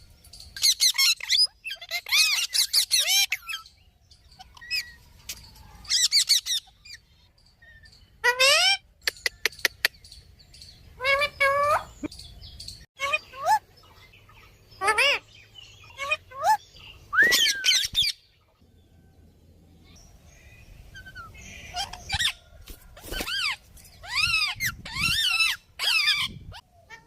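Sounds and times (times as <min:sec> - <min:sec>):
parrot squawking: 0:00.6 - 0:03.6, 0:08.2 - 0:08.8, 0:14.8 - 0:15.2, 0:15.8 - 0:16.6, 0:23.2 - 0:27.0.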